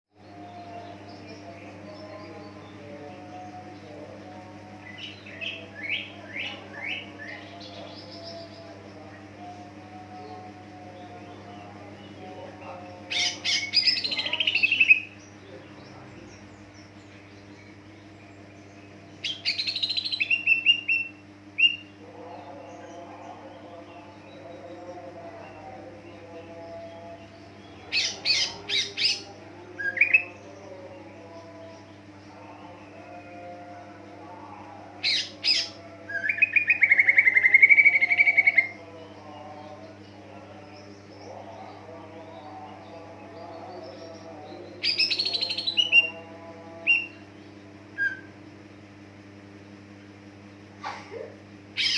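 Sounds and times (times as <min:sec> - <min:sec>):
steady low hum: 0:00.2 - 0:51.9
bird singing chattering phrases: 0:11.4 - 0:25.0, 0:49.7 - 0:51.9.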